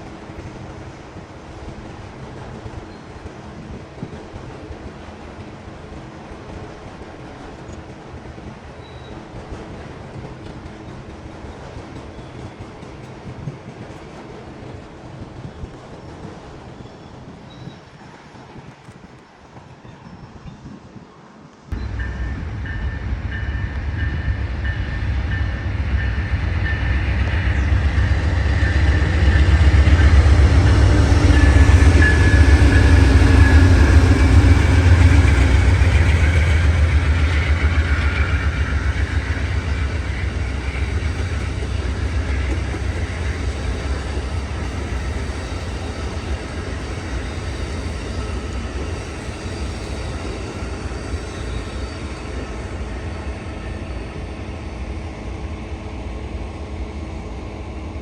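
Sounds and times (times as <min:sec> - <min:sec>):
train passing rumble: 0:00.0 - 0:58.0.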